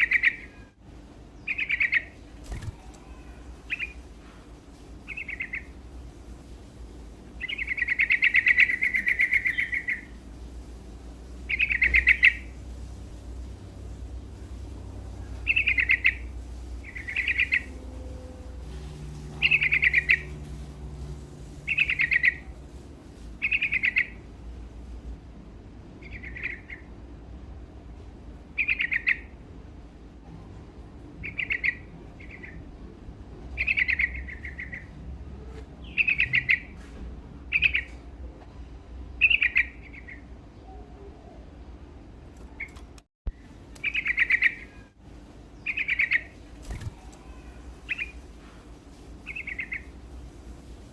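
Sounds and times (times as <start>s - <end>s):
bird chirping song: 0.0s - 4.1s, 5.0s - 5.8s, 7.4s - 10.2s, 11.3s - 12.7s, 14.3s - 22.6s, 23.4s - 24.3s, 26.0s - 27.0s, 28.5s - 29.4s, 31.2s - 32.8s, 33.5s - 36.8s, 37.5s - 38.1s, 39.1s - 41.6s, 42.4s - 48.2s, 49.2s - 50.8s.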